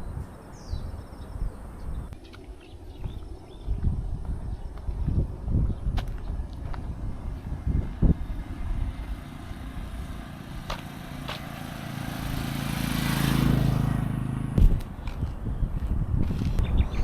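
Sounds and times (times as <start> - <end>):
vehicle engine passing by: 6.4 - 15.2.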